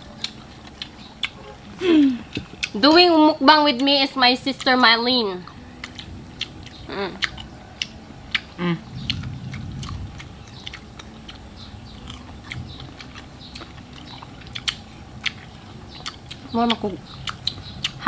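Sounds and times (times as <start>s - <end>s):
crunchy chewing: 0.0s - 2.8s, 3.7s - 18.0s
person humming: 1.7s - 2.4s, 6.8s - 7.5s, 8.5s - 9.1s.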